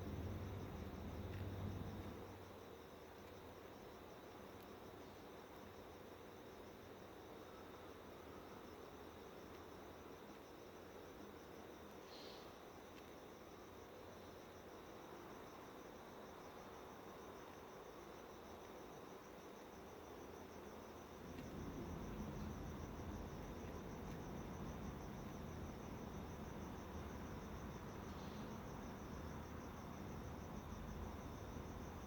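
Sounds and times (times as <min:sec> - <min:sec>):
low background rumble: 0:00.0 - 0:02.4, 0:21.0 - 0:32.0
high-pitched insect trill: 0:10.6 - 0:32.0.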